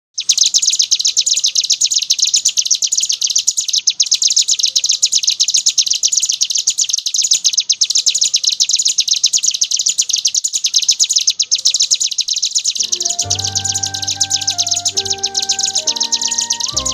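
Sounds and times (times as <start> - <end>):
bird singing rapid high trill: 11.6 - 16.9.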